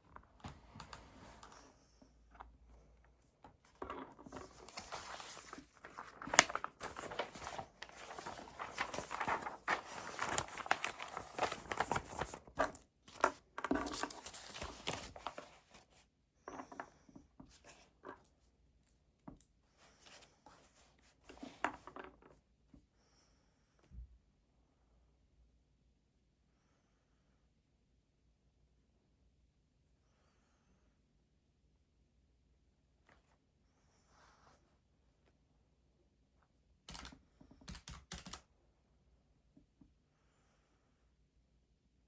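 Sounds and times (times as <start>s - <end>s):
paper rustling and scratching: 3.7s - 18.2s.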